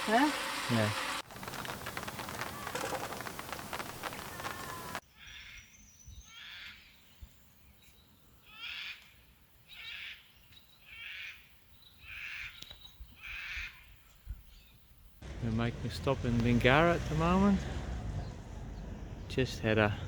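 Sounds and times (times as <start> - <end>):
rain on an awning: 0.0 - 5.0, 15.2 - 18.2
bird calling: 0.0 - 5.6.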